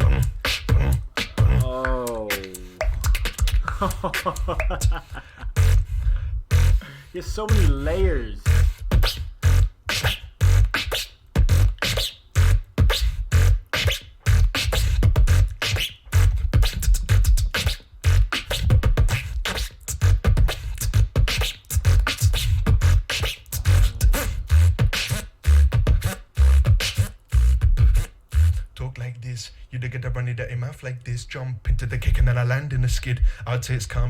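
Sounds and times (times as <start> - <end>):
beatboxing: 0.0 - 29.0, 31.6 - 34.0.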